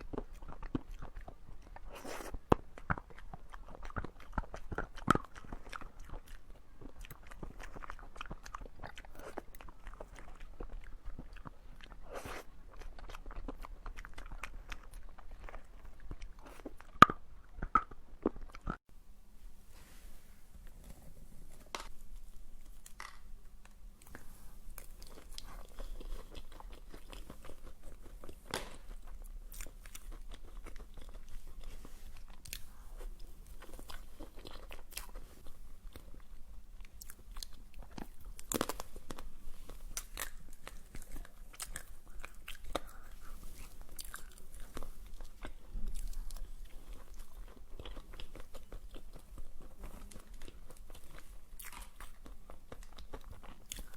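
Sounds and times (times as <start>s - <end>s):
crunchy bites and chewing: 24.8s - 53.9s.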